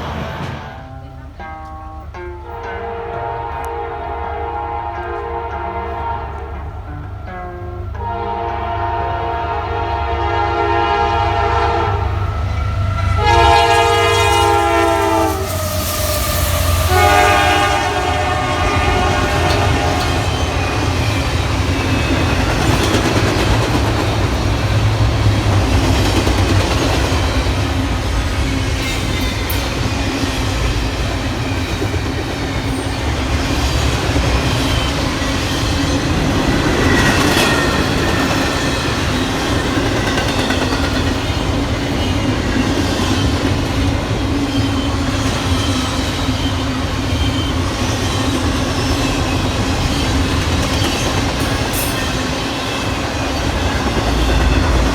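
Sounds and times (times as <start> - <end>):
train rumbling and rail clatter: 0.0 - 54.9
locomotive horn blasts: 0.4 - 22.4.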